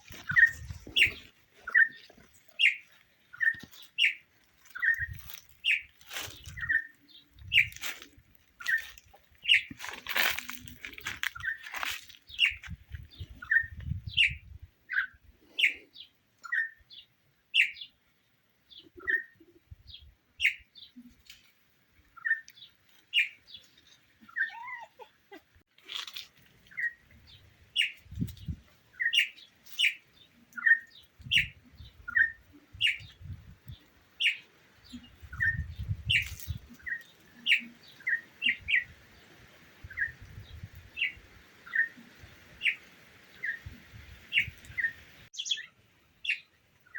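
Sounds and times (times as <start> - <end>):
bird chirping: 0.0 - 18.0, 26.7 - 38.9, 39.8 - 46.9.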